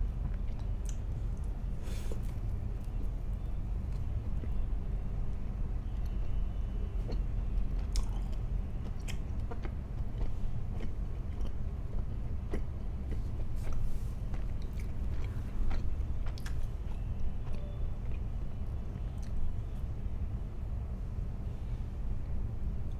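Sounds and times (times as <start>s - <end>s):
person chewing food: 7.0s - 18.2s.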